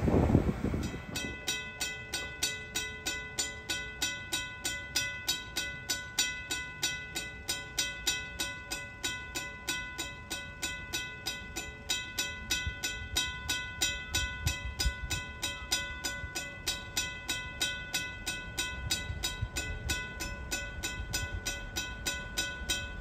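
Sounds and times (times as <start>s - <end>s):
freight train rumbling past: 0.0s - 5.6s
rapid even bell ringing: 0.8s - 23.0s.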